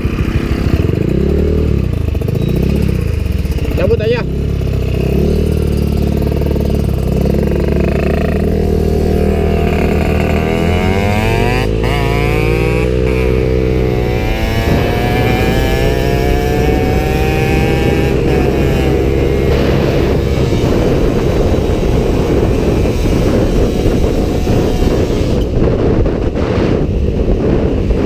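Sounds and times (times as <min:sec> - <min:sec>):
motorcycle engines accelerating: 0:00.0 - 0:28.0.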